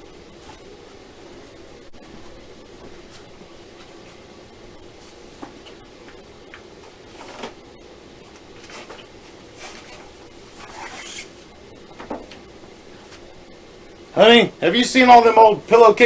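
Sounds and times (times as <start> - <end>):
steady low hum: 0.0 - 16.0
handling rustles and knocks: 5.0 - 7.6.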